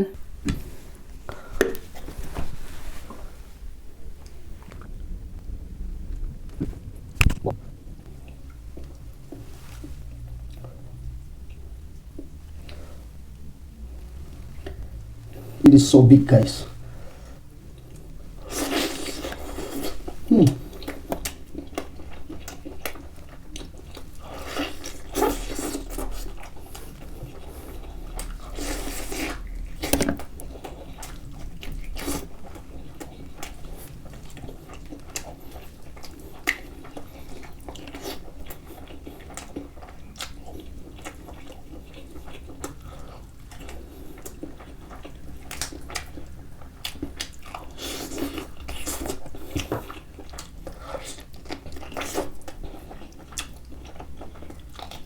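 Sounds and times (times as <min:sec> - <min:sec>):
falling hum: 0:00.1 - 0:20.9
biting and chewing: 0:17.1 - 0:55.0.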